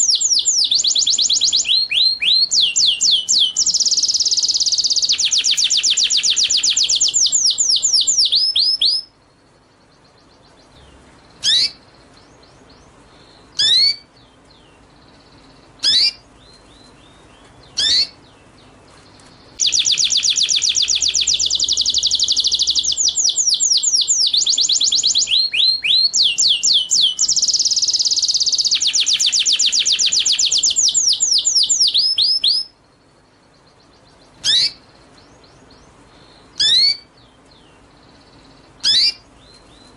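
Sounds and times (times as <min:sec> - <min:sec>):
small songbird trilling: 0:00.0 - 0:39.9.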